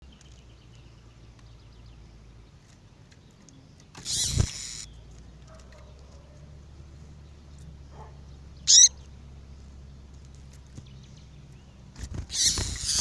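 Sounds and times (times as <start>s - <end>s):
bird chipping: 7.3s - 9.7s.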